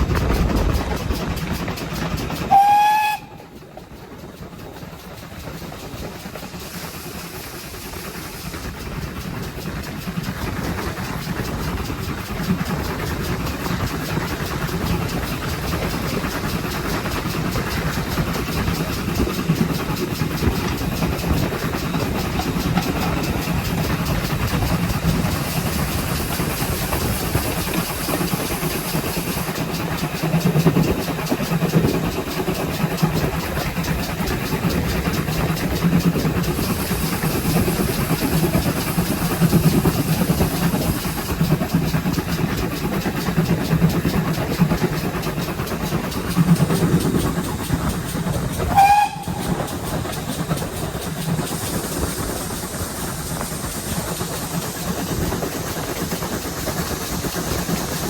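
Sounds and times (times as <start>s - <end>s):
steam train rumbling on rails: 0.0s - 58.0s
steam whistle blast: 2.5s - 3.4s, 48.7s - 49.6s.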